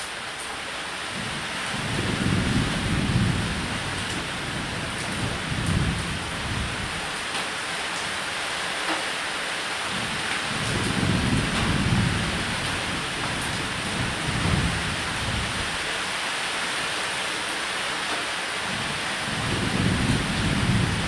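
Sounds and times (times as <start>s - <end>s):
rain falling on a roof: 0.0s - 21.0s
rolling thunder: 1.8s - 7.0s, 10.5s - 15.9s, 19.2s - 21.0s.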